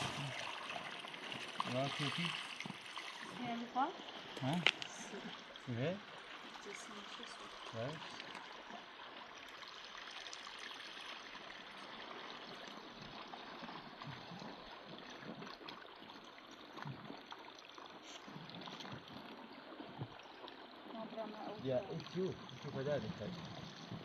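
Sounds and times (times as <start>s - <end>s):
water trickling: 0.0s - 24.0s.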